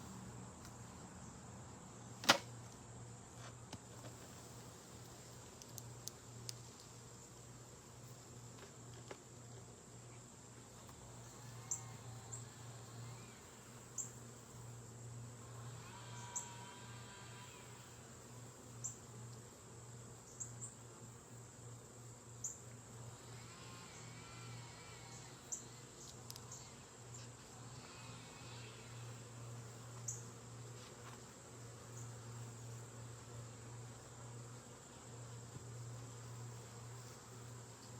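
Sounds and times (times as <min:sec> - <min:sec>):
bees buzzing: 0:09.6 - 0:37.9.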